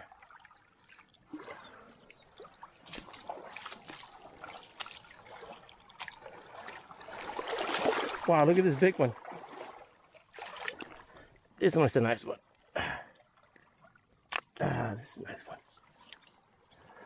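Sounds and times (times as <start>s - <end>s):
water lapping among rocks: 0.0s - 11.5s.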